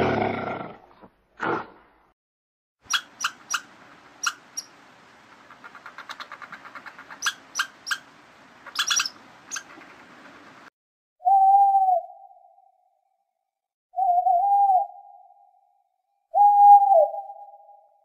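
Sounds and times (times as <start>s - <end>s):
squirrel chattering: 2.9s - 4.7s, 5.3s - 10.2s
owl hooting: 5.5s - 10.0s, 14.0s - 15.5s, 16.3s - 18.0s.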